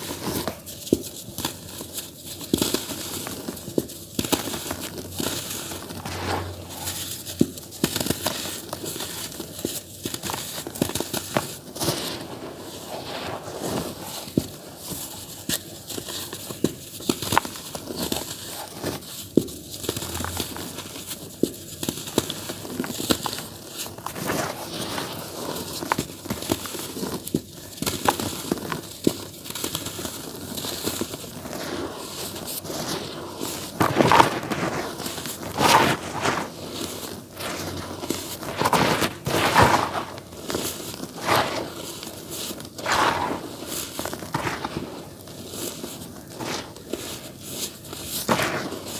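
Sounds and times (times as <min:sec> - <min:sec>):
dry dirt crunching and crackling: 0:37.4 - 0:40.4, 0:42.8 - 0:45.2.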